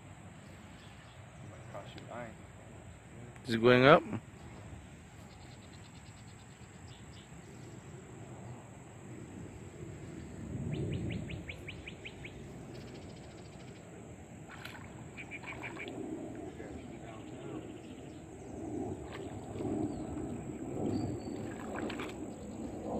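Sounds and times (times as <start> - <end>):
bird rattling call: 14.7 - 15.9.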